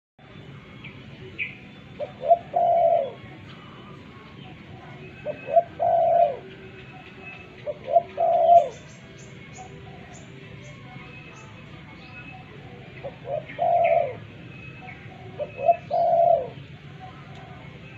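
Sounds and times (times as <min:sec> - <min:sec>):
dove cooing: 0:01.9 - 0:10.4, 0:12.3 - 0:17.9.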